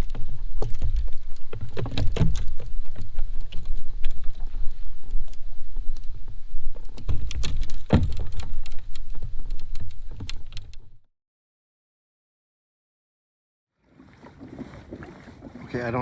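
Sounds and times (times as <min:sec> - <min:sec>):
gear and paddle knocking on kayak: 0:00.0 - 0:10.9, 0:14.0 - 0:16.0
wind rumble on microphone: 0:00.0 - 0:11.0.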